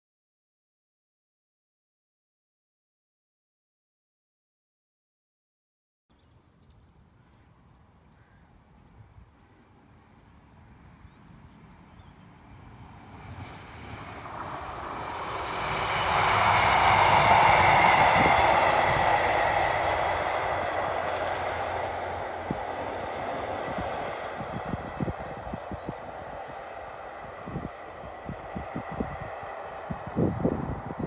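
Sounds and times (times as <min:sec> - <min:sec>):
diesel train passing: 0:08.6 - 0:31.0.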